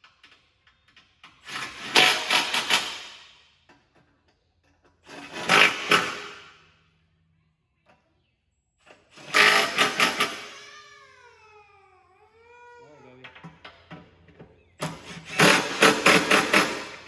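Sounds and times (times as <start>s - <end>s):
impact wrench hammering: 14.9s - 17.0s.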